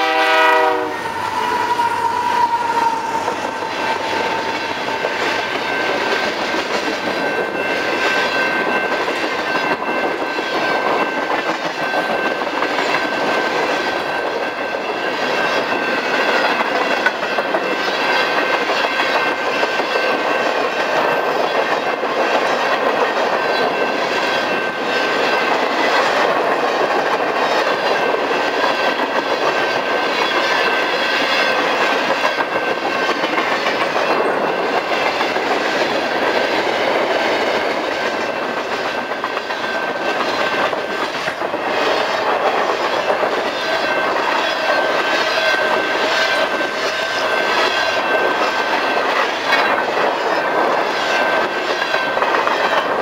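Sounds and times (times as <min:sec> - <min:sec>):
wheels clacking over rail joints: 0:00.4 - 0:53.0
thin high tone: 0:01.0 - 0:06.5.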